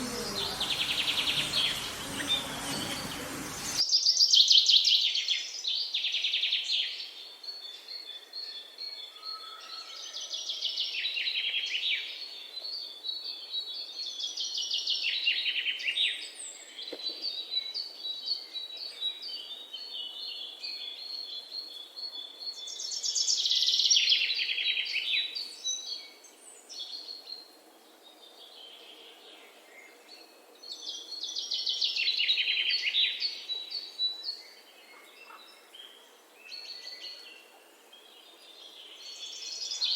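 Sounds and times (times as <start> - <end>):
songbirds trilling: 0.0 - 3.8
soft high bird chirps: 0.0 - 4.2.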